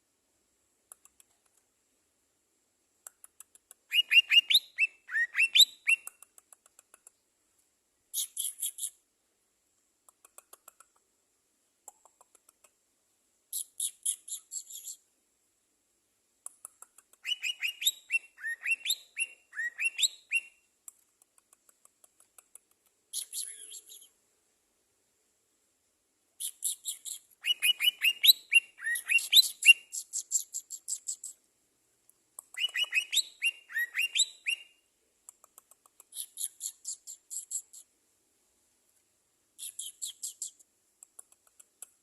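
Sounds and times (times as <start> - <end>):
songbird chirping: 3.0 - 9.1, 13.4 - 15.1, 16.4 - 24.6, 26.4 - 42.0.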